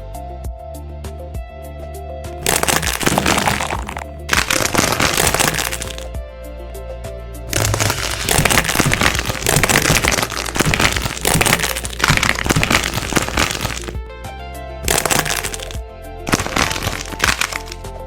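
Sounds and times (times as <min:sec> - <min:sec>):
wax crackling and crunching: 0:02.4 - 0:06.1, 0:07.5 - 0:14.0, 0:14.9 - 0:17.8.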